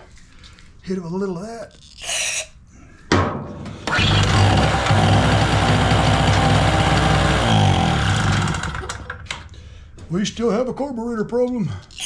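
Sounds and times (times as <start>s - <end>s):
generator engine pull-started: 3.8s - 9.4s.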